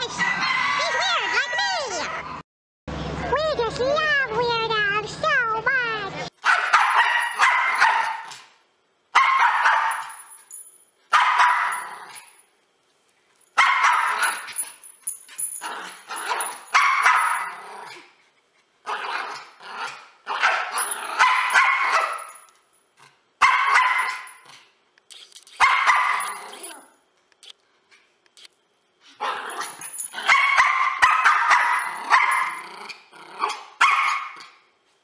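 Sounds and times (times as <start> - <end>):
dog barking: 6.4 - 8.5, 9.2 - 10.1, 11.1 - 11.8, 13.6 - 14.5, 16.8 - 17.6, 20.3 - 22.3, 23.4 - 24.4, 25.6 - 26.3, 30.2 - 32.6, 33.4 - 34.5.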